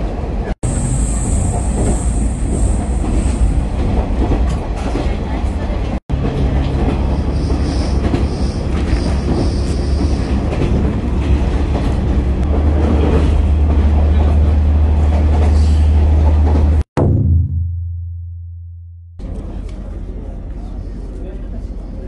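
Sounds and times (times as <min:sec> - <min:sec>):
wheels clattering on rails: 0:01.5 - 0:16.8
high wheel squeal: 0:07.0 - 0:10.5.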